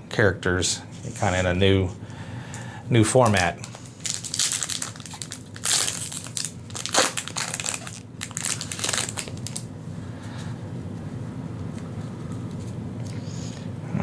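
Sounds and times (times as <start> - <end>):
foil wrapper crinkling: 3.2 - 9.7.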